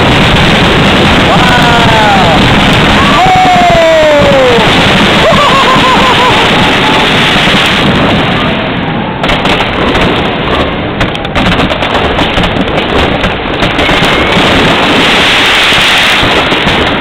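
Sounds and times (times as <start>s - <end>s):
firework whistle: 0.0s - 8.8s, 13.6s - 17.0s
fireworks bangs and crackling: 0.0s - 17.0s.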